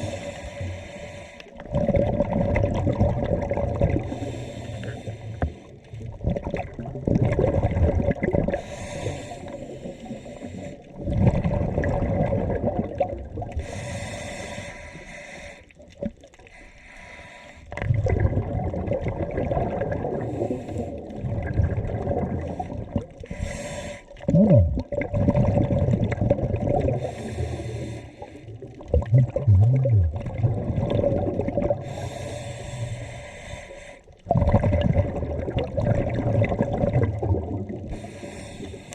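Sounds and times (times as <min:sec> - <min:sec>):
exhaled bubbles rumbling: 0:01.5 - 0:14.0, 0:17.7 - 0:23.5, 0:24.1 - 0:33.2, 0:34.1 - 0:38.9
regulator hissing inhalations: 0:31.8 - 0:34.1.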